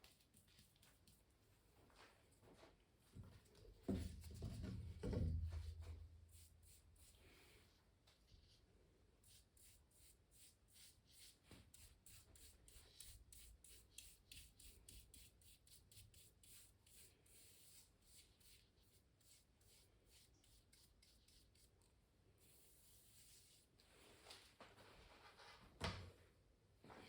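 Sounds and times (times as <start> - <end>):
brush strokes rubbing on canvas: 22.4 - 25.4.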